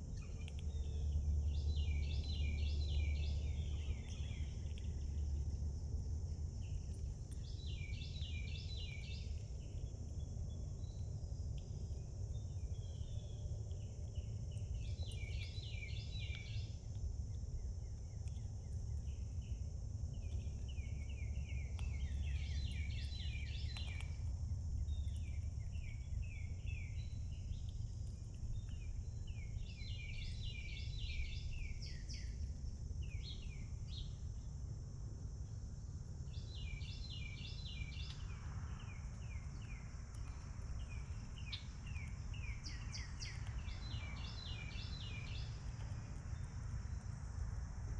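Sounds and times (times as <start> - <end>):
low outdoor rumble: 0.0 - 47.9
songbird singing: 0.0 - 47.9.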